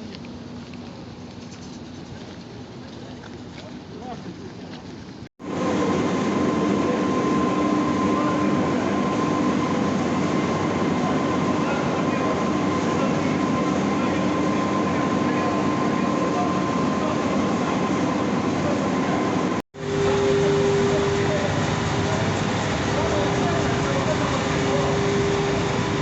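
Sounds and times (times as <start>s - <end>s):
machine running with whine: 5.4s - 26.0s.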